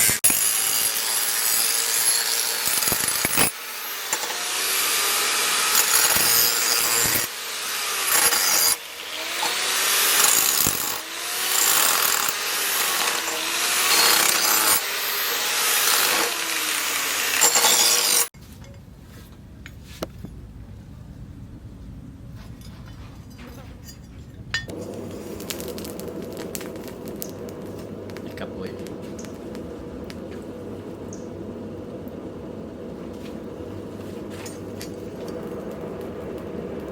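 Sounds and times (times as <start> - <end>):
low hum: 18.6 - 36.9.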